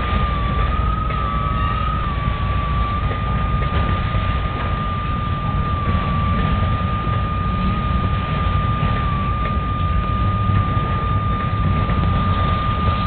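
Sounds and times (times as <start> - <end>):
freight train rumbling past: 0.0 - 13.0
high-pitched wheel squeal: 0.6 - 2.6.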